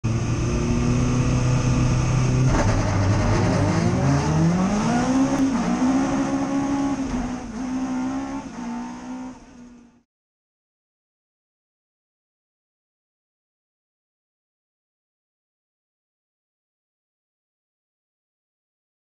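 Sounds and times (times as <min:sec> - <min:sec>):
rally car engine revving: 0:00.0 - 0:10.0.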